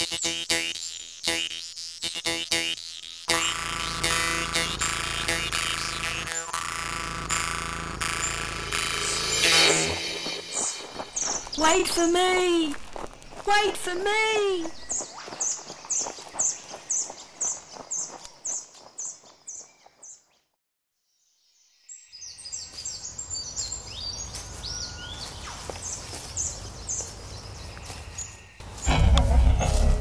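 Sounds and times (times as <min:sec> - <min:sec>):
bird chirping: 0:08.1 - 0:12.4, 0:14.6 - 0:20.4
low rumble: 0:28.7 - 0:30.0.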